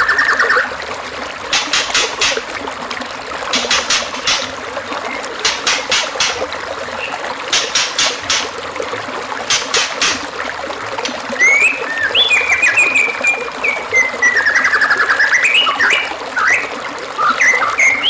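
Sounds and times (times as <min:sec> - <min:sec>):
trickling water: 0:00.0 - 0:18.0
songbird whistled song with trill: 0:11.4 - 0:18.0.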